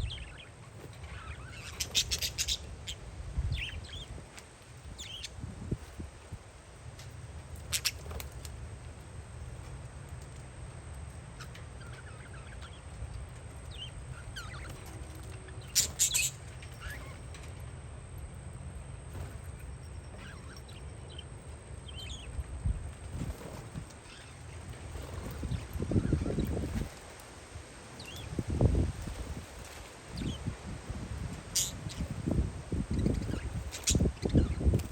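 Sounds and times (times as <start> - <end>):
parakeets chirping: 0.0 - 4.2, 4.8 - 6.0, 7.2 - 8.6, 11.0 - 17.6, 19.0 - 34.9
wind rumble on microphone: 0.0 - 10.3, 19.0 - 34.9.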